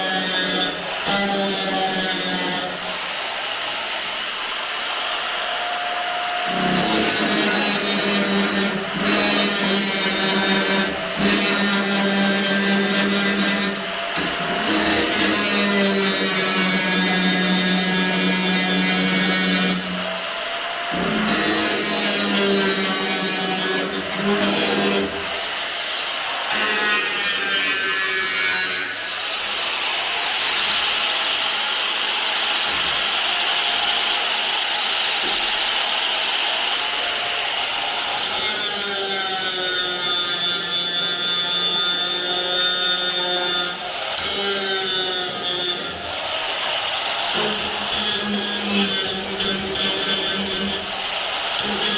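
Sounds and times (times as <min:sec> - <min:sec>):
electric power tool motor: 0:00.0 - 0:26.8, 0:41.4 - 0:51.9
hissing grinding on steel: 0:00.0 - 0:33.1, 0:33.9 - 0:51.9.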